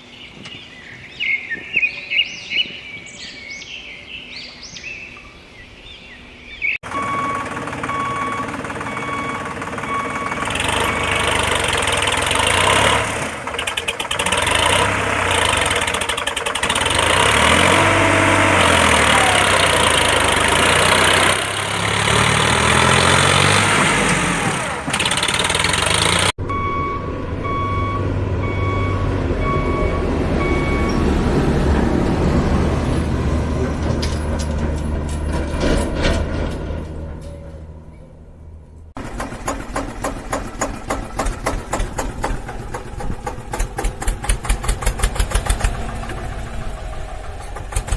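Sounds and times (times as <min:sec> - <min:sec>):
reversing alarm beeping: 0:06.8 - 0:11.5, 0:26.4 - 0:31.2
heavy diesel engine revving: 0:06.8 - 0:34.4, 0:39.0 - 0:47.9.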